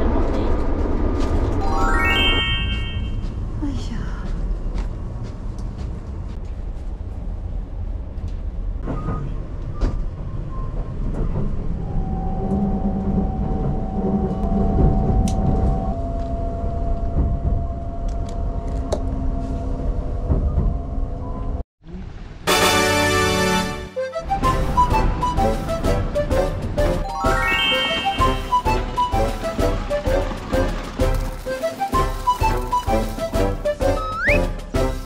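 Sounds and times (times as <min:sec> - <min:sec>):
wheels rumbling on rails: 0:00.0 - 0:01.9, 0:02.8 - 0:22.3, 0:24.2 - 0:35.0.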